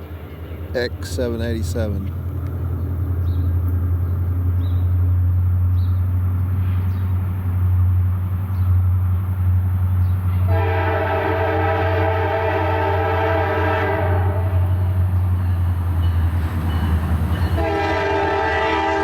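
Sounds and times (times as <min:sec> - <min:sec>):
diesel locomotive engine drone: 0:00.0 - 0:19.0
locomotive air horn chord: 0:10.5 - 0:14.8, 0:17.6 - 0:19.0.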